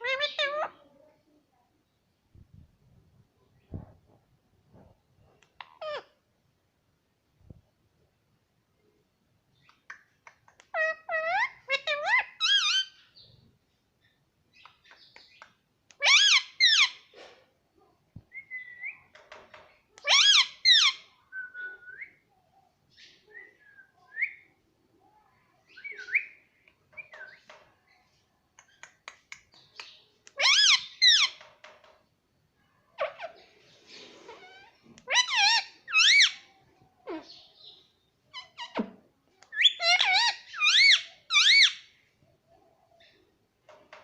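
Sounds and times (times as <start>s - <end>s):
baby parrot chirping: 16.0s - 17.0s, 20.0s - 21.1s, 29.6s - 31.4s, 34.3s - 36.5s, 39.5s - 41.9s.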